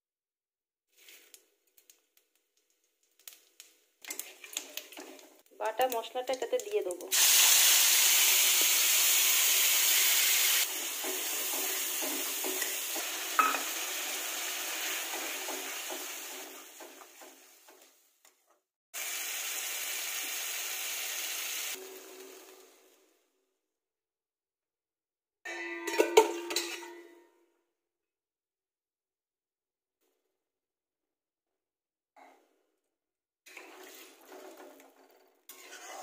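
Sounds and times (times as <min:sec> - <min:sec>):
spice paste sizzling in oil: 0:05.8 - 0:17.6, 0:19.0 - 0:21.8, 0:35.5 - 0:36.0
metal spatula scraping and stirring: 0:25.5 - 0:27.2, 0:33.5 - 0:36.0.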